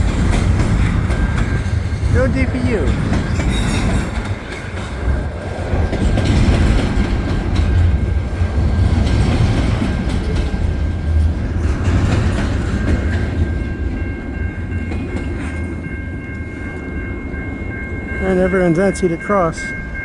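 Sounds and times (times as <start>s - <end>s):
wheels clattering over rail joints: 0.0s - 15.9s
freight train rumbling past: 0.0s - 20.0s.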